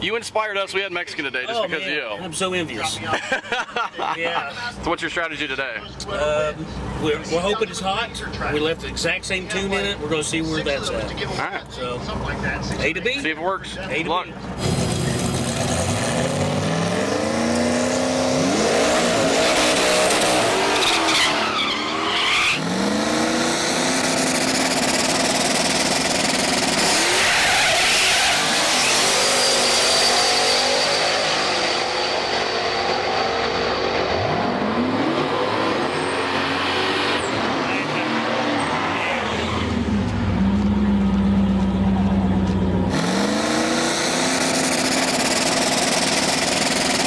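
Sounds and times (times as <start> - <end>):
drag racing car engine revving: 14.4 - 47.0
tire squeal: 18.8 - 22.8, 24.2 - 33.2, 35.8 - 40.1.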